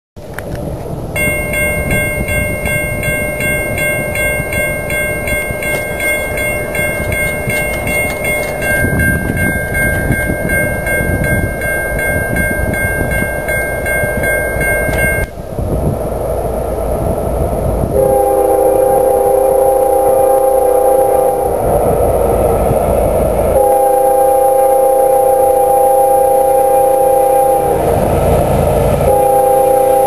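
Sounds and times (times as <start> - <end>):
train rumbling past: 0.2 - 30.0
crossing bell ringing: 1.1 - 15.3, 25.4 - 30.0.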